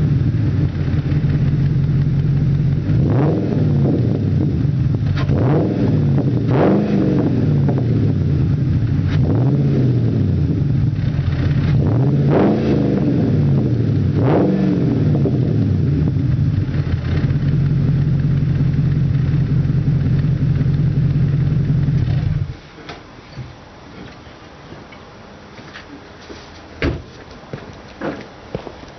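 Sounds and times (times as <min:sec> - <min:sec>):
car engine revving and idling: 0:00.0 - 0:22.6.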